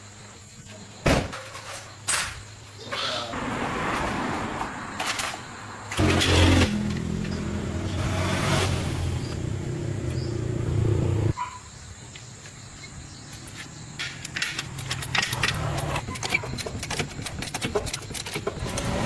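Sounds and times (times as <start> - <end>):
vehicle engine running: 6.0 - 11.3.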